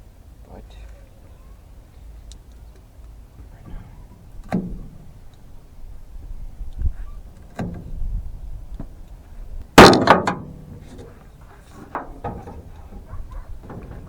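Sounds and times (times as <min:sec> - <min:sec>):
sharp bang: 0:09.8 - 0:10.6
knocks and clunks of tools: 0:09.8 - 0:14.0.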